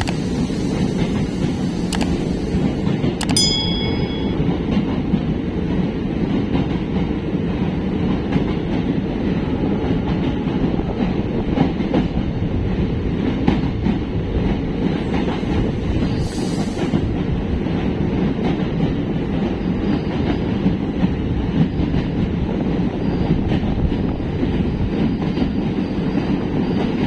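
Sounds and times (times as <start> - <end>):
wheels clicking over rail joints: 0.0 - 5.3
train wheels rumbling on rails: 0.0 - 27.0.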